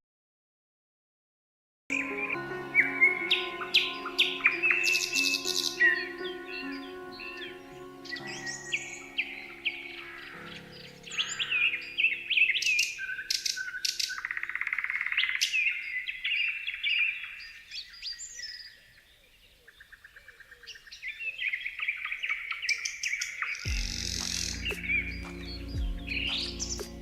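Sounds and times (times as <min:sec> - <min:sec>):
soft background music: 0:01.9 - 0:13.3, 0:23.7 - 0:27.0
songbirds singing and chirping: 0:01.9 - 0:27.0.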